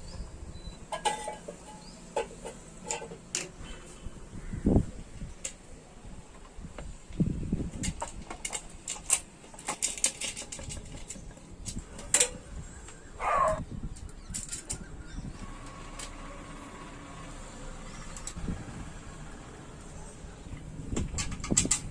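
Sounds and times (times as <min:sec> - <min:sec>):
sharp clicks and light knocks: 0:06.3 - 0:13.0, 0:20.5 - 0:21.9.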